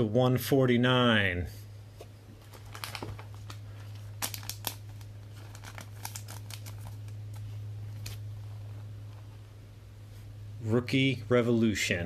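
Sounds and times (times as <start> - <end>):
low electrical hum: 0.0 - 12.0
cards crinkling and clicking: 2.4 - 8.2.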